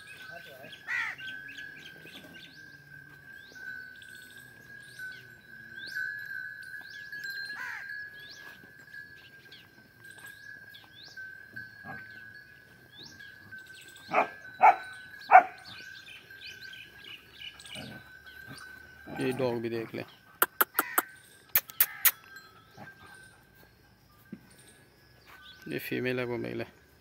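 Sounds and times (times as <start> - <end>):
small birds chirping: 0.0 - 27.0
loud short bird calls: 0.9 - 1.4, 20.4 - 22.2.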